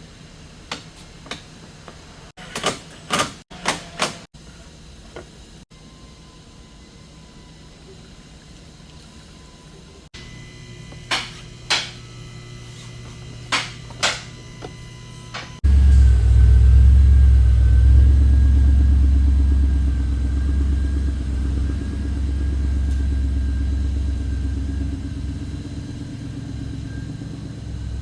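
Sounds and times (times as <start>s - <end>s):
faint steady whine: 4.4s - 28.0s
car engine starting and idling: 15.6s - 28.0s.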